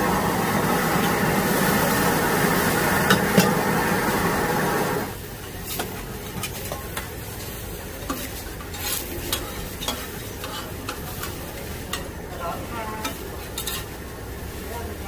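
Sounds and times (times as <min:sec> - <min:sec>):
food sizzling: 0:00.0 - 0:15.0
metal spatula scraping a wok: 0:05.6 - 0:12.2, 0:12.8 - 0:14.0.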